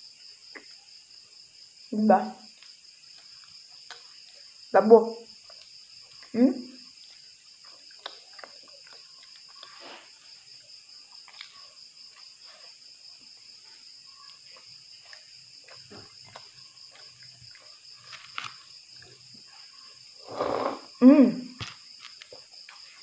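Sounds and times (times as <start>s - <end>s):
night insects trilling: 0.0s - 23.0s
chewing and mouth sounds: 2.4s - 4.7s, 5.3s - 20.0s.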